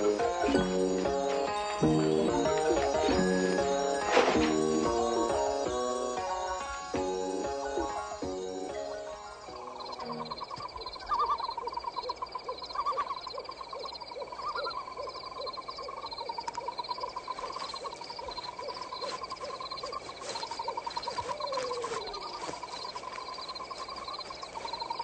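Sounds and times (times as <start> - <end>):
frog croaking: 0.0 - 19.9
high insect chirping: 0.0 - 25.0.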